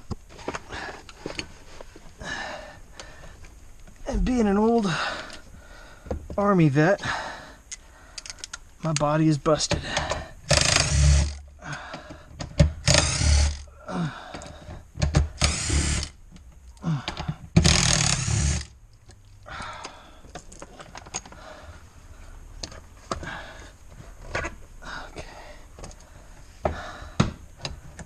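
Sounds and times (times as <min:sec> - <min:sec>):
parts clicking and rattling: 0:07.6 - 0:13.7, 0:14.3 - 0:21.5
power drill bursts: 0:10.5 - 0:11.4, 0:12.8 - 0:13.6, 0:15.4 - 0:16.2, 0:17.6 - 0:18.7.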